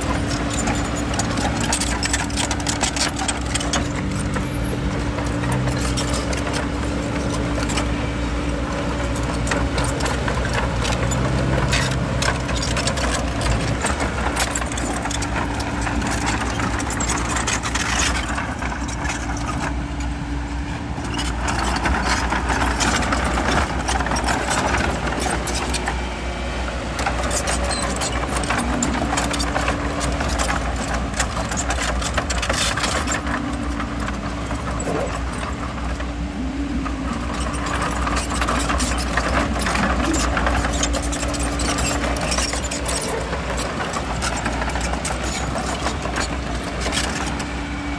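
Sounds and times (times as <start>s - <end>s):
bulldozer diesel engine running: 0.0s - 47.9s
continuous clatter: 0.0s - 47.9s.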